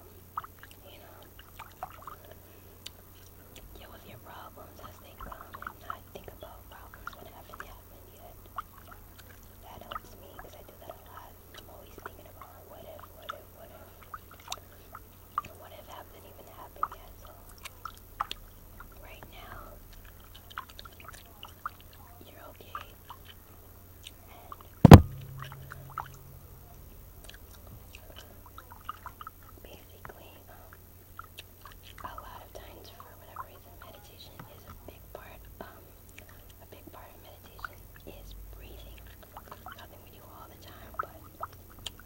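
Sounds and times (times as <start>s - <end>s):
low ringing hum: 0.0s - 42.0s
gum chewing wet smacks: 0.1s - 42.0s
mouth clicks: 24.0s - 34.8s
loud thump: 24.9s - 26.4s.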